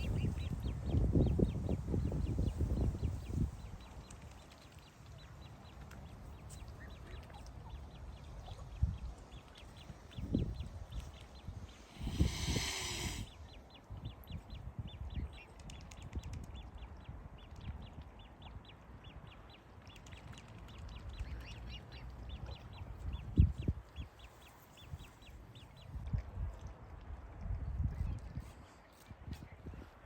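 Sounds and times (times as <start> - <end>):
bird giving short high calls: 11.8 - 13.4.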